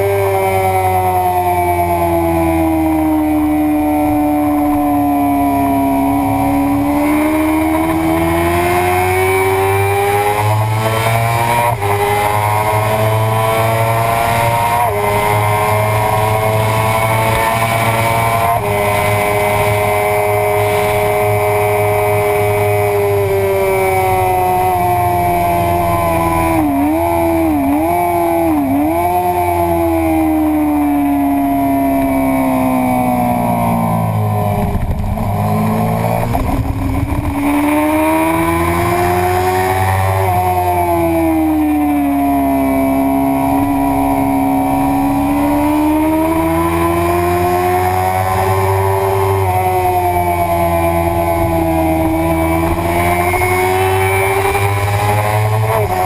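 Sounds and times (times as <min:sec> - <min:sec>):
motorcycle engine revving: 0:00.0 - 0:56.0
wind rushing: 0:34.5 - 0:38.8.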